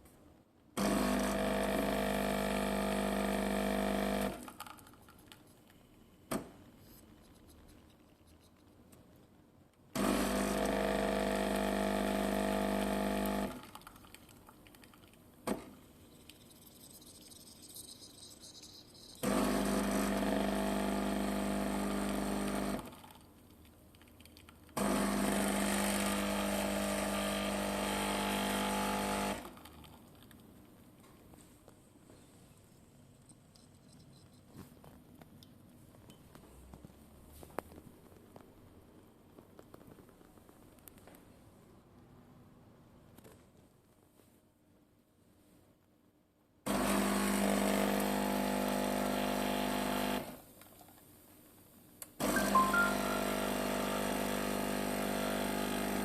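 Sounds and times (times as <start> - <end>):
appliance buzzing hum: 0.8 - 4.4, 10.0 - 13.8, 19.2 - 23.1, 24.8 - 29.6, 46.7 - 50.5, 52.2 - 56.0.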